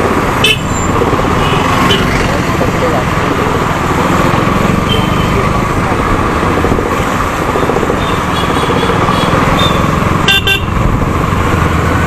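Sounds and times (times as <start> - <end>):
motorcycle engine: 0.0 - 12.0
road and wind noise: 0.0 - 12.0
vehicle horn beeping: 9.6 - 10.8.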